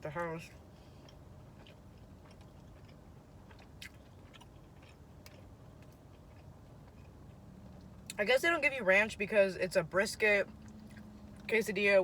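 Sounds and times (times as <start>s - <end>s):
person chewing: 0.5s - 8.2s.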